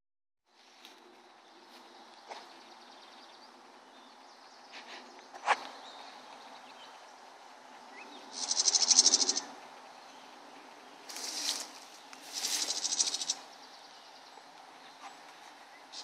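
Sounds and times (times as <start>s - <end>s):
songbird buzzy trills: 7.8s - 16.0s.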